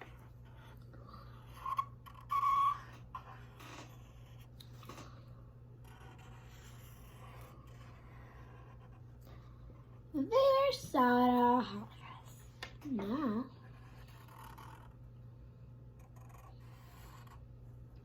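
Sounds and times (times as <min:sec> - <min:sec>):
squeaky pen strokes: 0:00.0 - 0:05.0, 0:05.8 - 0:09.1, 0:13.6 - 0:15.0
pen scratching on paper: 0:00.0 - 0:05.2, 0:05.8 - 0:10.7, 0:13.5 - 0:15.1, 0:16.0 - 0:17.4.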